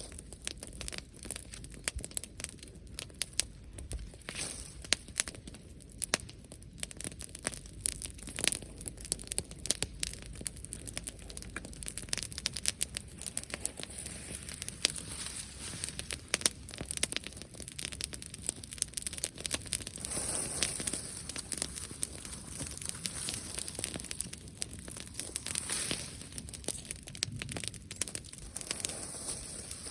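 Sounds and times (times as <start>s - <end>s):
bonfire crackling and popping: 0.0s - 29.9s.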